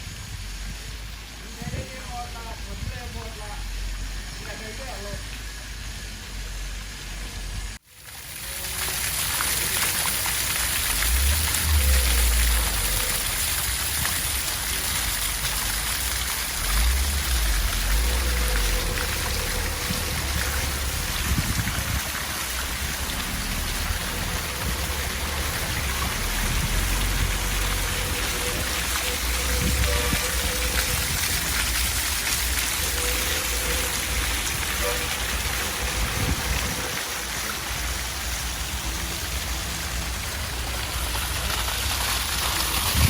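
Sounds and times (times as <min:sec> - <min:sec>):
waterfall pouring and splashing: 0:00.0 - 0:43.0
low rumbles: 0:10.8 - 0:43.0.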